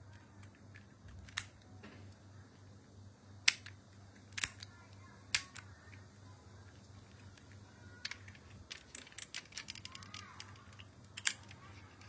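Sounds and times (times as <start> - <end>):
faint low hum: 0.0 - 12.0
toy packaging clicks: 3.5 - 4.7, 5.3 - 5.7, 7.0 - 12.0.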